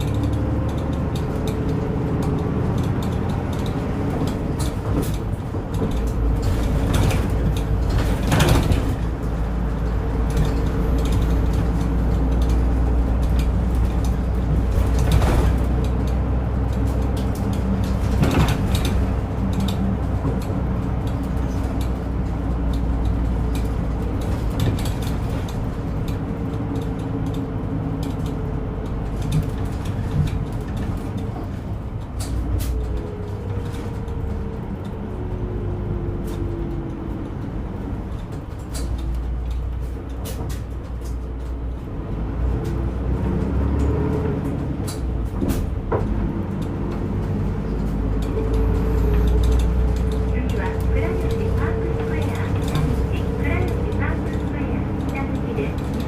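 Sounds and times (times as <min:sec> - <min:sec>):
body rattles and knocks: 0:00.0 - 0:56.0
bus engine droning: 0:00.0 - 0:56.0.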